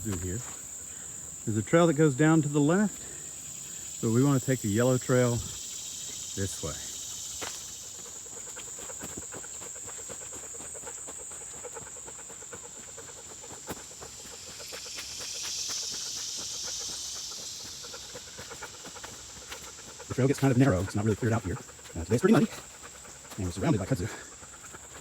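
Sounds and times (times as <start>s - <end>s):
crickets chirping drone: 0.0s - 25.0s
footsteps on muddy trail: 0.0s - 25.0s
broad high hiss: 13.8s - 20.4s.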